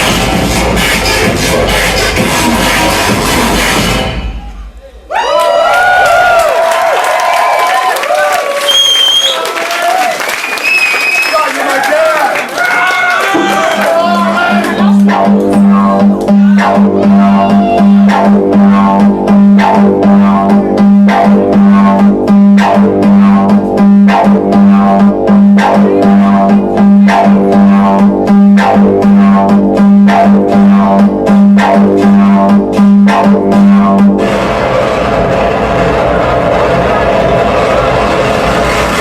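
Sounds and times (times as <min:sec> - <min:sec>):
industrial electronic music: 0:00.0 - 0:05.2, 0:13.2 - 0:39.0.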